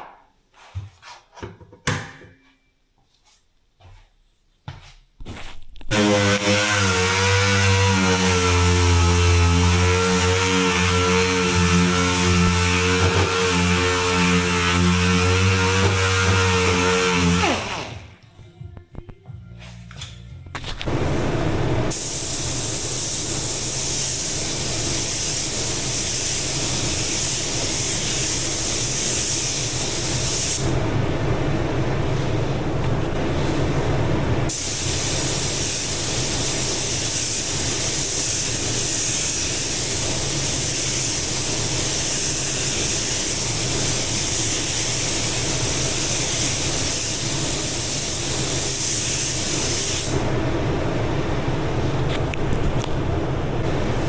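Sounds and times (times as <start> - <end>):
steady low hum: 13.5 - 36.8
spray gun hissing: 21.9 - 30.6, 34.5 - 50.2.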